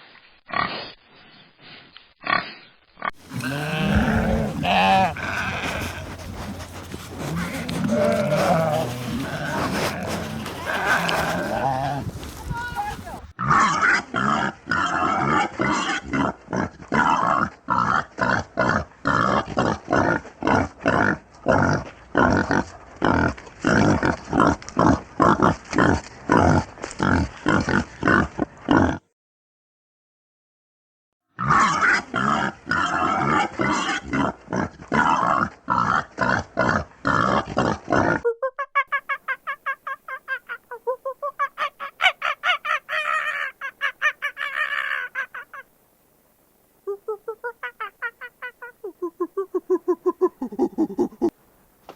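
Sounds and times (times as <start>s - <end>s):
pig grunting: 2.2s - 29.0s, 31.4s - 38.2s.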